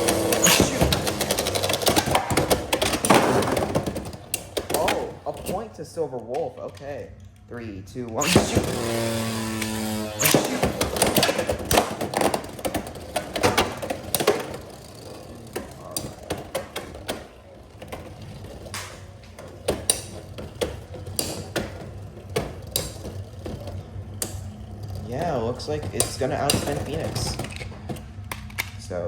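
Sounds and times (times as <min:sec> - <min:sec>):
spinning tops clattering: 0:00.0 - 0:05.3
spinning tops knocking: 0:00.0 - 0:05.6, 0:08.2 - 0:28.2.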